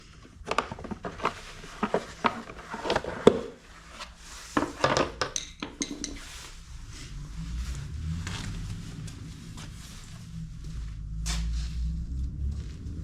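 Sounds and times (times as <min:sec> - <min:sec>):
tools knocking and clicking: 0:04.6 - 0:06.2.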